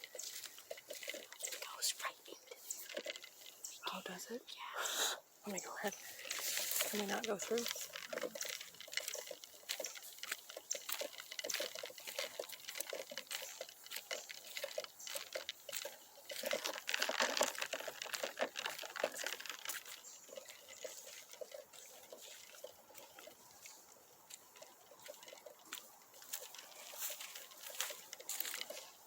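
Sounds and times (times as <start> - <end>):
footsteps crunching through dry leaves: 0.0 - 4.8, 5.5 - 29.0.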